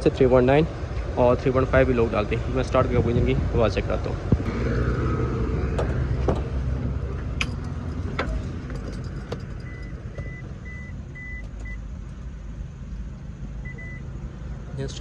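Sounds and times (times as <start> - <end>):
low hum: 4.2 - 14.6.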